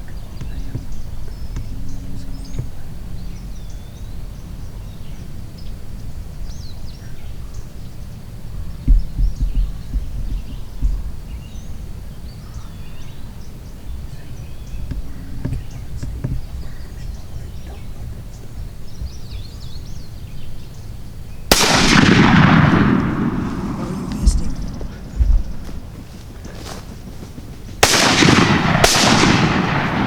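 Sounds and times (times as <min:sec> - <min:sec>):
songbirds chirping: 0:00.0 - 0:30.0
shotgun blast echoing: 0:21.5 - 0:25.9, 0:27.8 - 0:30.0.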